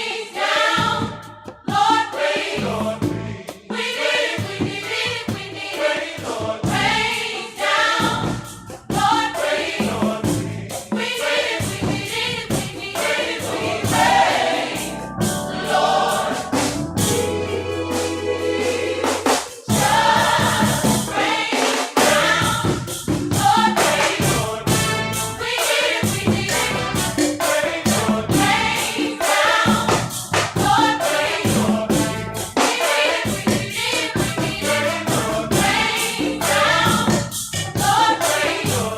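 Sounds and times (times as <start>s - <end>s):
gospel choir singing: 0.0s - 38.9s
band with steady beat: 8.0s - 38.9s.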